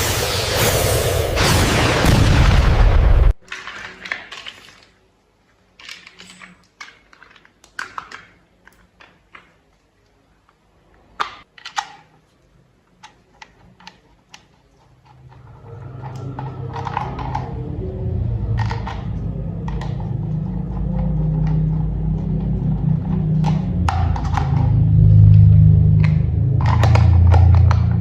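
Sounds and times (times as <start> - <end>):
loud rushing noise: 0.0 - 3.4
plastic toy parts clicking: 5.8 - 12.2, 12.8 - 17.6, 26.0 - 28.0.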